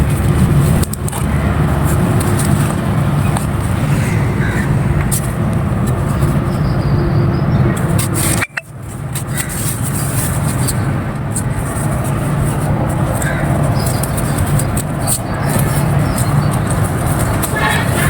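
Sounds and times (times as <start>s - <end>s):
dry clay crackling: 0.0s - 6.6s, 7.7s - 18.0s
low rumble: 0.0s - 7.9s.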